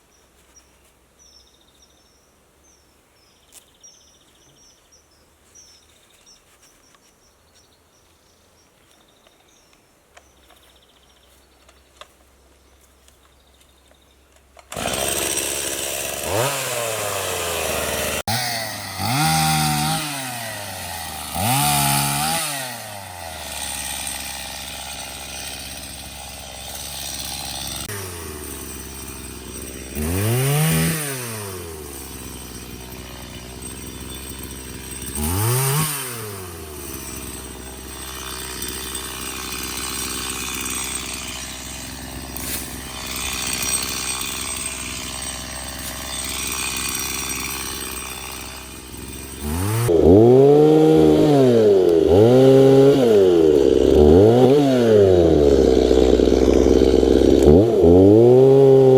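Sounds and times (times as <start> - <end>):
chainsaw revving: 14.6 - 58.9.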